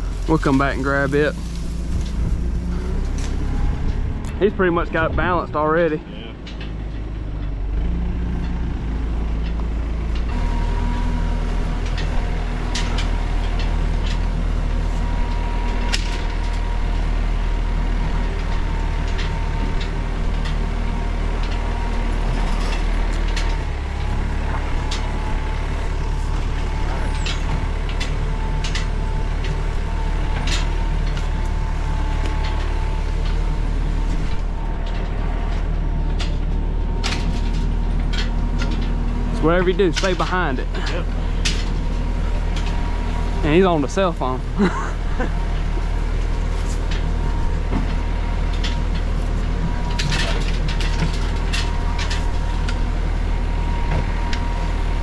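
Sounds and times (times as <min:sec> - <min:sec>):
vehicle engine running: 0:00.0 - 0:55.0
knocks and rattles: 0:18.0 - 0:54.8.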